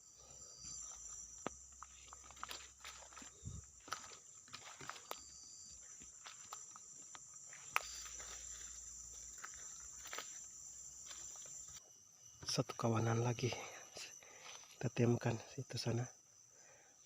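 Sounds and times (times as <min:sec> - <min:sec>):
high-pitched insect drone: 0:00.0 - 0:17.0
footsteps in undergrowth: 0:00.5 - 0:11.8, 0:14.2 - 0:14.9
twigs snapping and rustling: 0:06.2 - 0:08.7.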